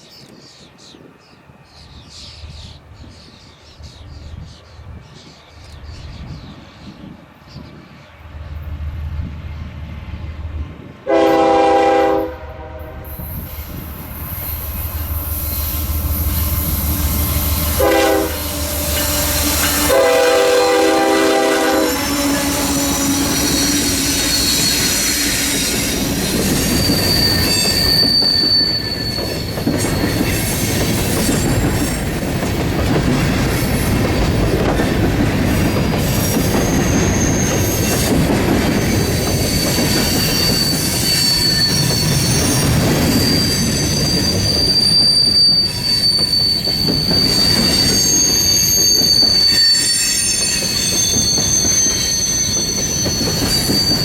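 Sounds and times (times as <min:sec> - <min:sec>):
locomotive air horn: 0:11.0 - 0:13.2, 0:17.7 - 0:24.9
high wheel squeal: 0:13.2 - 0:32.2, 0:36.0 - 0:54.0.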